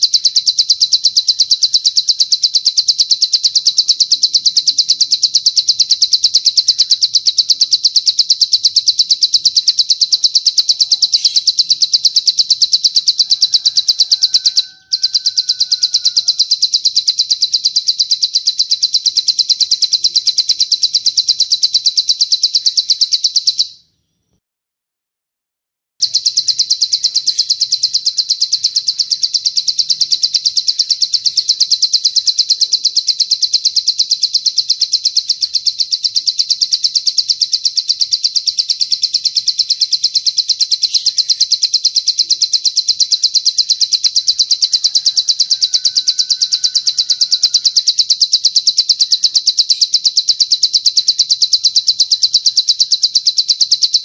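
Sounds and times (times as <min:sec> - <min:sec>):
bird trilling: 0:00.0 - 0:24.2, 0:26.0 - 0:54.0.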